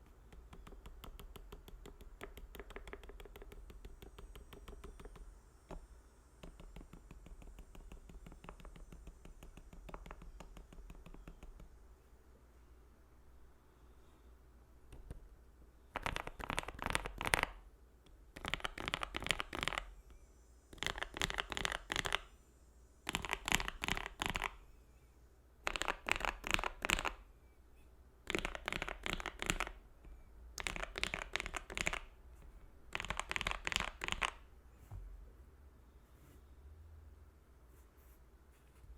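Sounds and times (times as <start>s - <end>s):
typing on mechanical keyboard: 0.3s - 5.2s, 6.4s - 11.7s, 15.9s - 17.6s, 18.3s - 19.9s, 20.8s - 22.3s, 23.1s - 24.6s, 25.6s - 27.2s, 28.3s - 29.8s, 30.6s - 32.1s, 32.9s - 34.4s.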